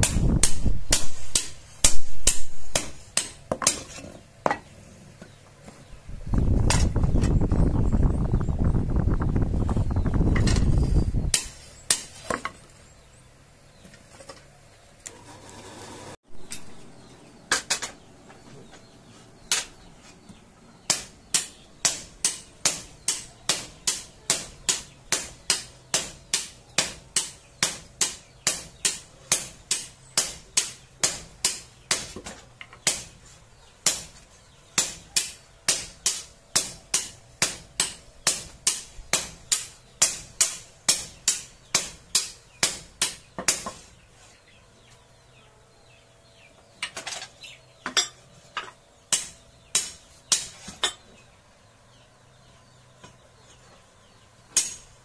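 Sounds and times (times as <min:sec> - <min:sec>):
hammer striking metal on anvil: 0:20.9 - 0:32.0, 0:49.1 - 0:51.0, 0:54.6 - 0:54.9.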